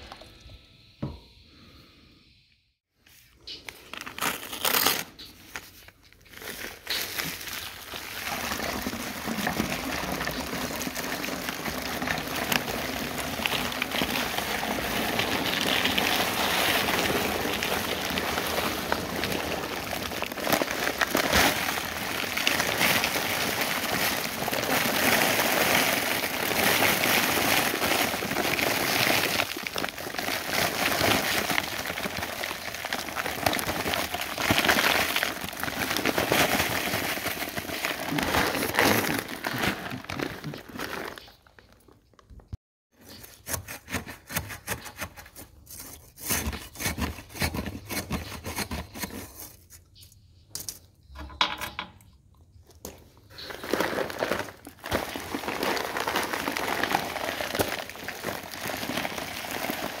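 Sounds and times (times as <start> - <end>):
paper bag crinkling: 3.1 - 42.2, 52.8 - 60.0
dry concrete mix pouring: 4.4 - 42.0, 52.8 - 60.0.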